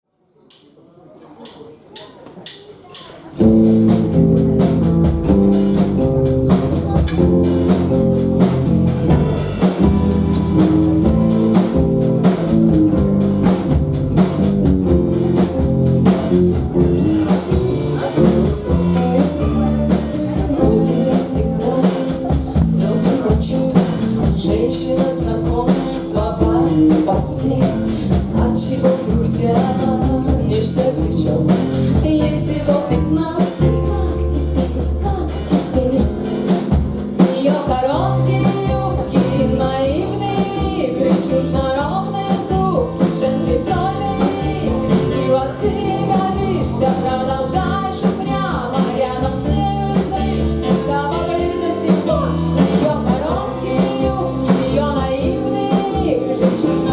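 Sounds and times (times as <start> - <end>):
live rock band playing: 3.4 - 56.9
lead vocal singing: 15.4 - 56.9.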